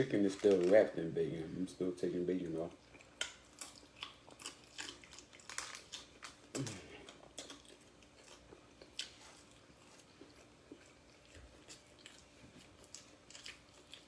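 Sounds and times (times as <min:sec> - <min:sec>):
person chewing: 0:02.8 - 0:14.0.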